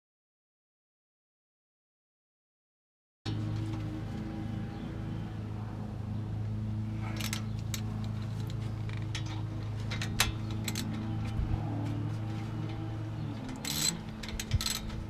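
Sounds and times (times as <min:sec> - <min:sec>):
steady low hum: 0:03.3 - 0:15.0
metal hand tools clinking: 0:13.5 - 0:14.9.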